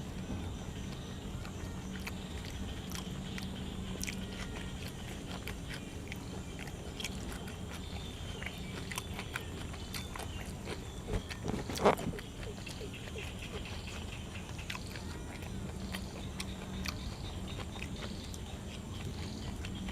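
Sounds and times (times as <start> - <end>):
person chewing crisp food: 0.0 - 19.9.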